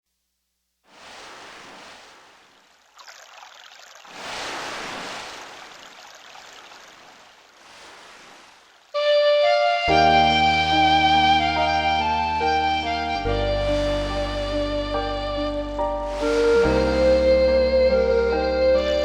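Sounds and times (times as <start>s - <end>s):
rushing surf-like noise: 0.9s - 2.8s, 4.1s - 9.0s, 13.6s - 14.8s, 16.1s - 17.8s
bass: 9.0s - 19.0s
keyboard flute-like melody: 9.0s - 19.0s.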